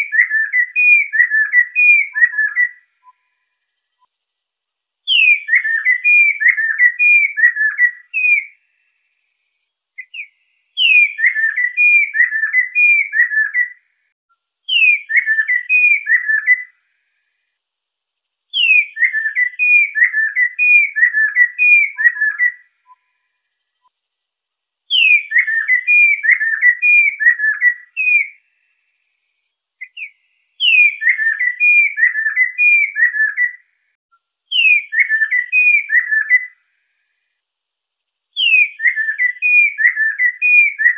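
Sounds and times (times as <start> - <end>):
bird singing whistled notes: 0.0 - 4.1, 5.1 - 9.0, 9.9 - 14.0, 14.7 - 16.8, 18.5 - 23.9, 24.9 - 29.2, 29.8 - 33.8, 34.5 - 36.6, 38.3 - 40.9.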